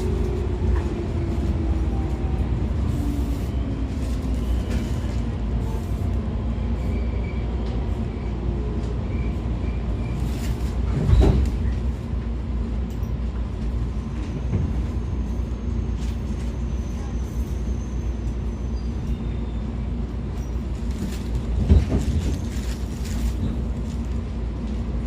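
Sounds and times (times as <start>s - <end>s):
train wheels rumbling: 0.0s - 25.0s.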